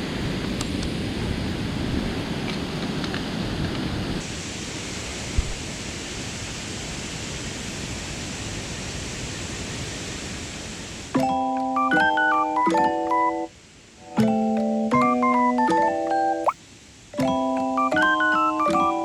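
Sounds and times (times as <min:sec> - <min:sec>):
steady rushing noise: 0:00.0 - 0:06.2
piano melody: 0:11.2 - 0:13.5, 0:14.1 - 0:16.6, 0:17.2 - 0:19.0.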